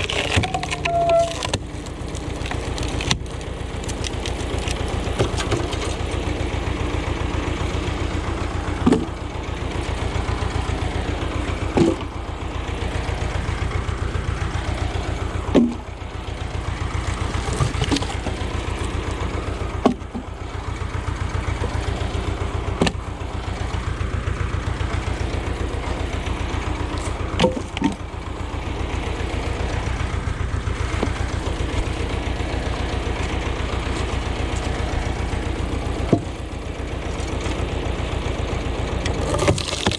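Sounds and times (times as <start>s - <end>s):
wood splitting crack: 0.0s - 6.7s, 16.8s - 19.1s, 26.8s - 28.0s, 30.6s - 38.0s, 39.0s - 39.9s
tractor engine running: 0.0s - 39.9s.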